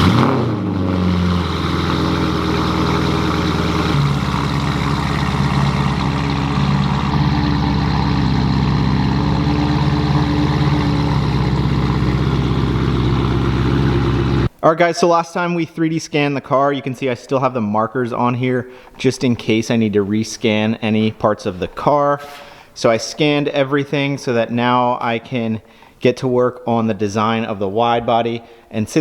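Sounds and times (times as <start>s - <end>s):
car engine idling: 0.0s - 14.5s.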